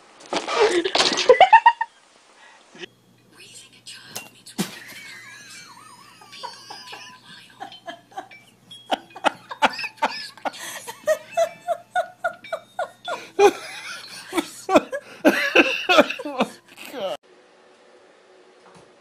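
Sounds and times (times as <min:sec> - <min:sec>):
person laughing: 0:00.5 - 0:01.9, 0:04.6 - 0:17.2.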